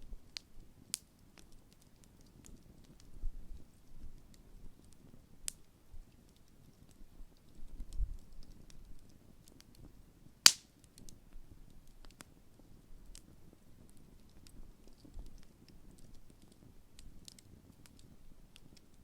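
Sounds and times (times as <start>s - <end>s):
campfire crackling: 0.1s - 19.0s
loud sharp pop: 10.5s - 10.7s.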